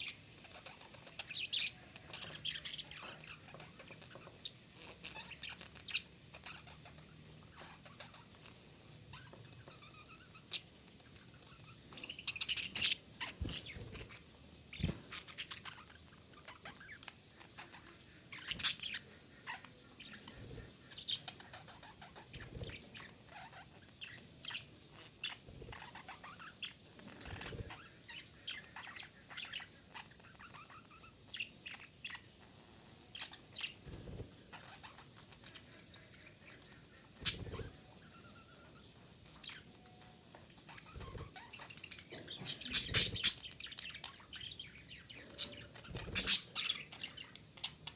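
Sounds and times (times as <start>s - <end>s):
budgerigar chattering: 37.2s - 37.6s, 42.5s - 43.5s, 46.0s - 46.8s.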